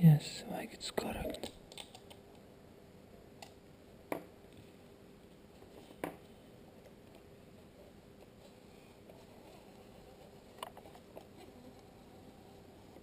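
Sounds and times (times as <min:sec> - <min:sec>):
faint clicks of small parts: 0:01.0 - 0:02.5.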